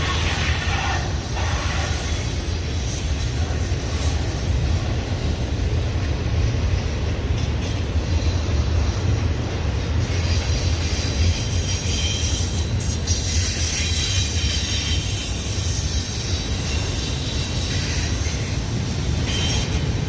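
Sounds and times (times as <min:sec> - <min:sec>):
freight train rumbling past: 0:00.0 - 0:20.0.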